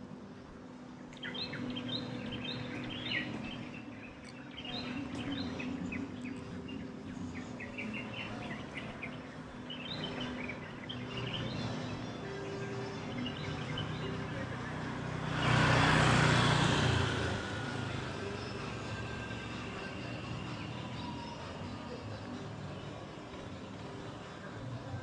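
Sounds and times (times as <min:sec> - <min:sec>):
small birds chirping: 0:01.1 - 0:24.5.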